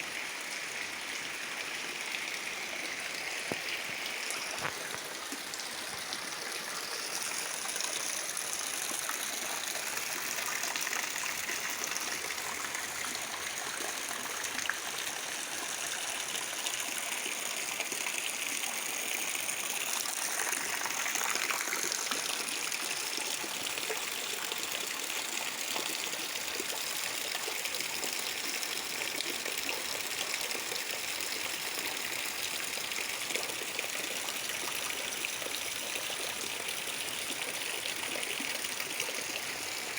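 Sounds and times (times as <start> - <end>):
rainwater trickling: 0.8 - 18.2, 34.2 - 39.9.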